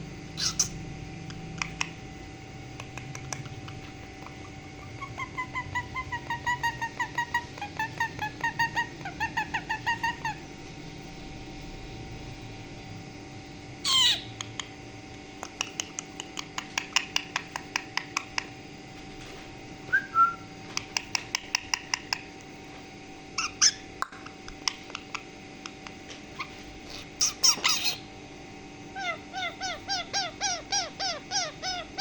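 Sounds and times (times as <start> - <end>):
parrot whistle: 0.4 - 0.7, 19.9 - 20.5, 27.2 - 28.0
parrot screeching and chirping: 0.4 - 0.8, 4.2 - 10.4, 13.8 - 14.4, 23.4 - 23.9, 26.3 - 28.1, 29.0 - 32.0.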